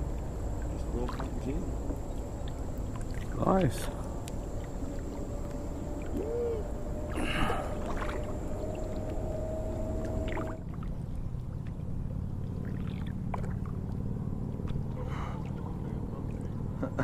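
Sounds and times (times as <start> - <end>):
faint steady tone: 0.0 - 17.0
steady low rumble: 0.0 - 17.0.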